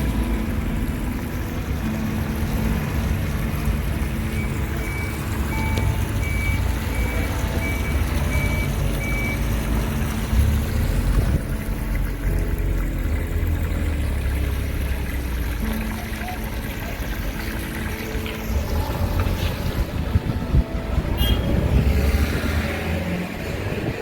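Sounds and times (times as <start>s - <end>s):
reversing alarm beeping: 4.3s - 9.6s.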